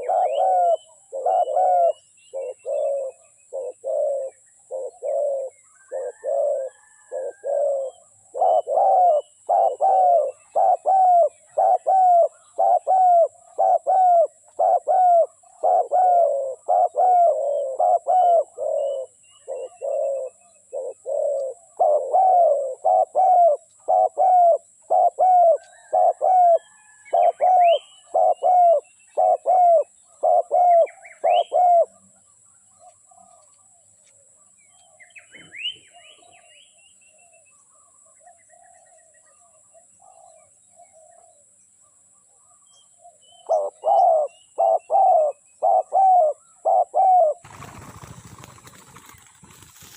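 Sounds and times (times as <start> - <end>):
dove cooing: 0.0 - 32.1, 43.0 - 49.9
small birds chirping: 0.0 - 49.9.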